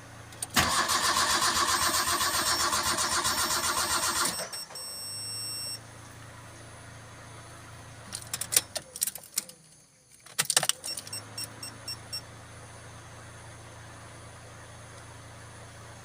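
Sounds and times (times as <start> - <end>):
car engine humming: 0.0 - 4.8, 5.4 - 9.6, 10.7 - 16.0
ignition keys jangling and clicking: 8.0 - 11.7.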